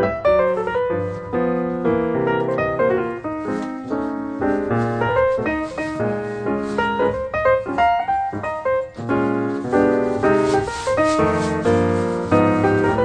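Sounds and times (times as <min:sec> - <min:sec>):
background piano music: 0:00.0 - 0:13.0.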